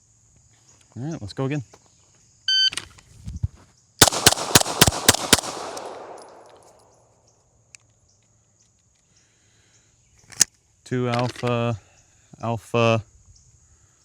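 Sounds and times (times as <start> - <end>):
pistol shots: 4.0 - 6.8.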